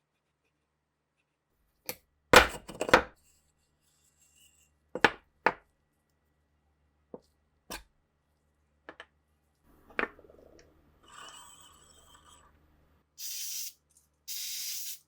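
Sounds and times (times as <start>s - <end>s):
tools knocking on workbench: 5.0s - 5.6s.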